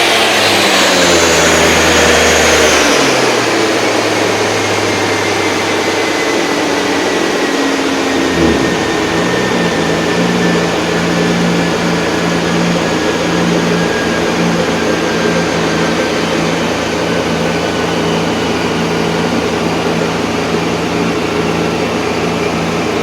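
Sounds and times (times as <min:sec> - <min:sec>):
engine running: 0:07.0 - 0:23.0
rush of air: 0:08.3 - 0:10.3.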